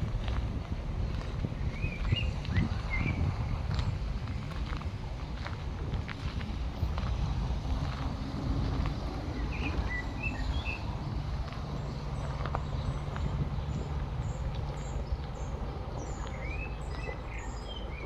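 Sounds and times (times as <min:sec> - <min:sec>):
engine-like hum: 0:00.0 - 0:18.0
low outdoor rumble: 0:00.0 - 0:18.0
small birds chirping: 0:01.1 - 0:04.5, 0:08.9 - 0:18.0.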